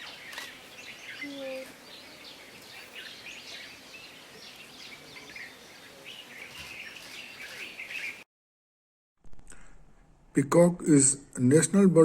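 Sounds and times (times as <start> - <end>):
faint outdoor background noise: 0.0 - 8.3, 9.4 - 12.0
small birds chirping: 0.0 - 8.3.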